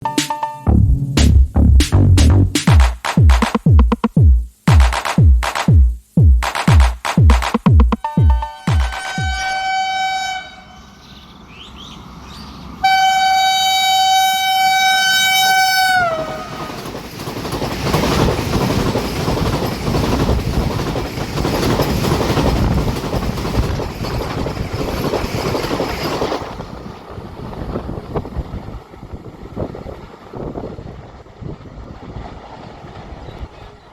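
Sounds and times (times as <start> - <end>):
train coaches rushing past: 8.0 - 11.0, 11.8 - 33.9
train horn blast: 8.0 - 11.0, 12.8 - 16.8.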